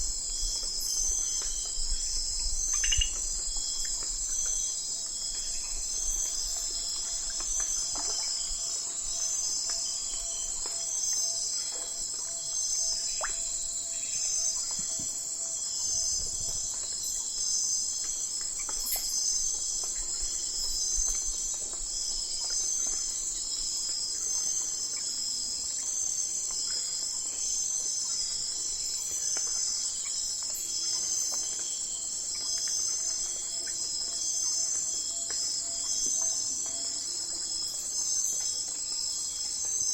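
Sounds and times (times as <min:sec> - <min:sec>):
crickets trilling: 0:00.0 - 0:39.9
pulsing insect chirps: 0:02.5 - 0:04.8.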